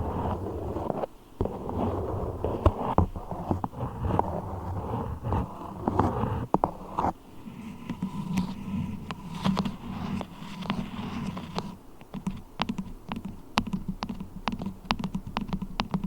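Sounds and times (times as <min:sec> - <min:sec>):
beeswax rustling and crackling: 0:00.0 - 0:11.8.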